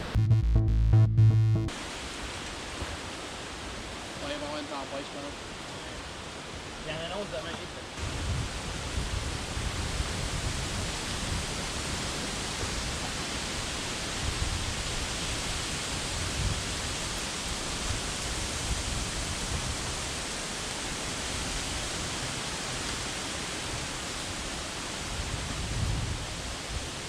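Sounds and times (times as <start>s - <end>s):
rain: 1.7s - 27.0s
wind gusts buffeting microphone: 8.0s - 27.0s.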